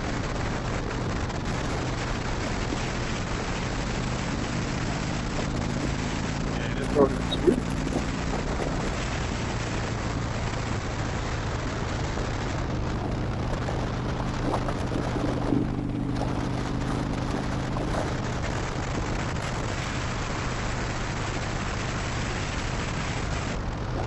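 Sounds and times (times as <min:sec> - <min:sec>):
motorcycle engine cruising: 0:00.0 - 0:24.0
wind rushing over microphone: 0:00.0 - 0:24.0.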